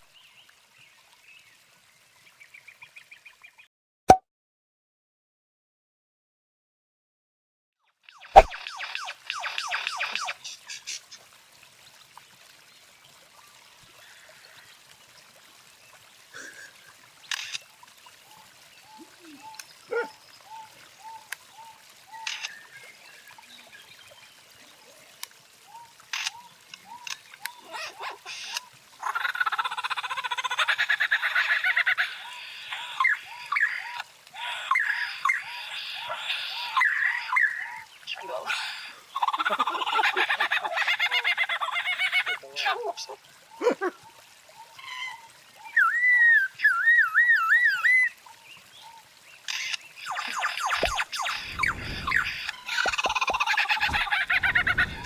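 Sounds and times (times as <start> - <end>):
bird trilling: 8.3 - 8.6, 50.1 - 55.0
bird chirps: 50.0 - 55.0.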